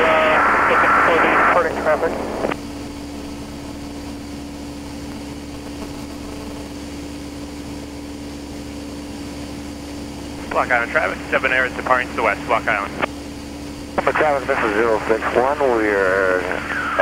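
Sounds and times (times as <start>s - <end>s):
radio transmission: 0.0s - 2.6s, 10.4s - 13.1s, 13.9s - 17.0s
aircraft engine and propeller drone: 0.0s - 17.0s
held hum tone: 0.0s - 17.0s.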